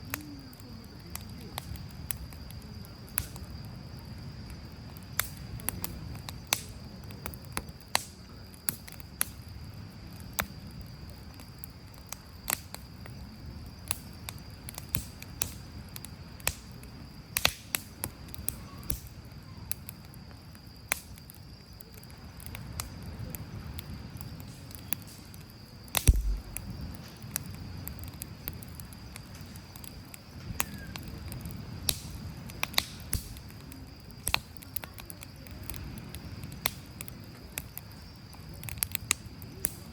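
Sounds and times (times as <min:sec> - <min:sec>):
campfire crackling and popping: 0:00.0 - 0:39.9
low thump: 0:26.0 - 0:26.8.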